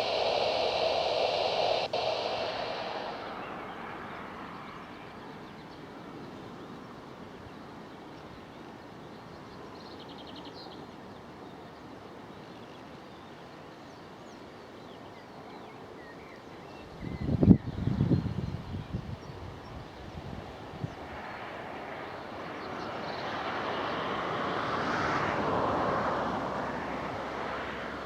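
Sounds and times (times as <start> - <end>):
radio hiss: 0.0 - 5.5
outdoor background noise: 0.0 - 28.0.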